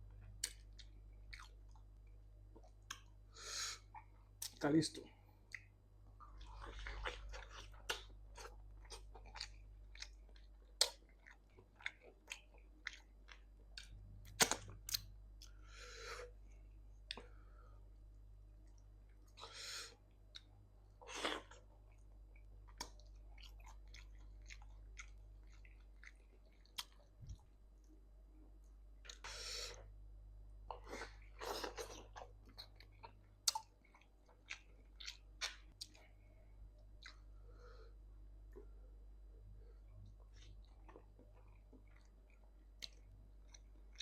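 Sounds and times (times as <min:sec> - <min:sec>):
person chewing: 0:00.2 - 0:03.2, 0:05.4 - 0:17.5, 0:18.6 - 0:27.4, 0:30.7 - 0:37.6, 0:39.6 - 0:44.0.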